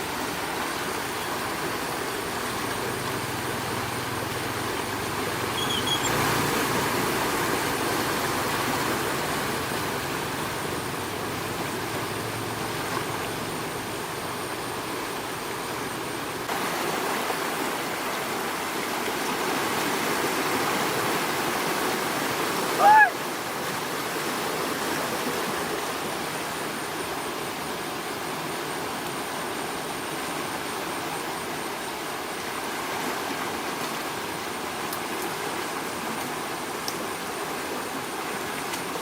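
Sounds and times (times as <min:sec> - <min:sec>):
floodwater rushing: 0:00.0 - 0:39.0.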